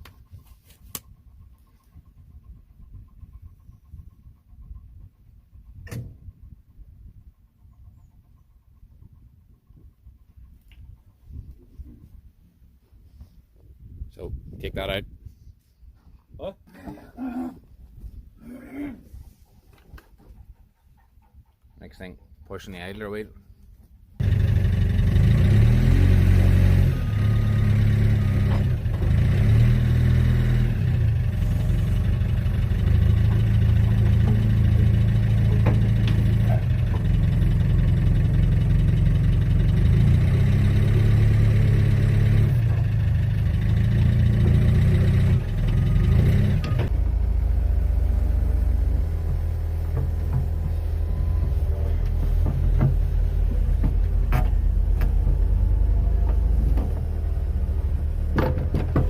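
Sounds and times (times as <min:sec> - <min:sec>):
excavator diesel engine labouring: 0:24.2 - 0:59.0.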